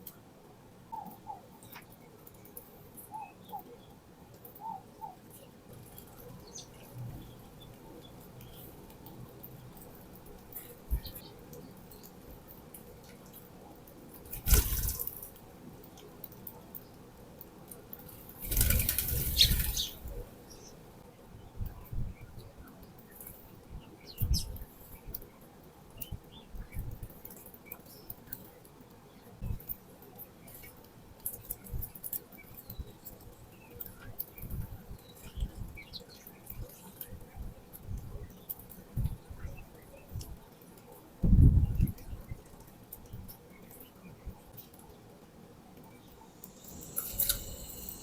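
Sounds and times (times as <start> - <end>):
birds pecking clicks: 1.0 - 20.7, 22.7 - 45.1, 45.8 - 48.0
birds' wings flapping: 14.1 - 15.4, 18.0 - 20.3.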